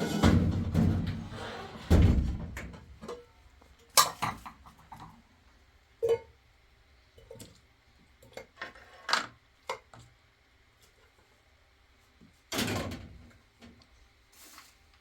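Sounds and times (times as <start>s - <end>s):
objects knocking and clattering: 0.0s - 3.3s.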